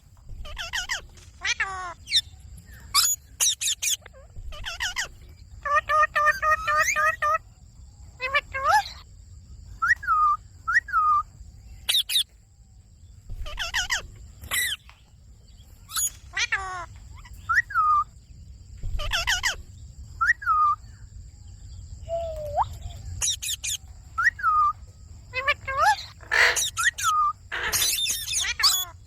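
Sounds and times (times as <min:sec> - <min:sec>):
parrot whistling and screeching: 0:00.4 - 0:07.4, 0:15.9 - 0:16.8, 0:17.4 - 0:18.1, 0:22.1 - 0:24.8, 0:25.4 - 0:29.0.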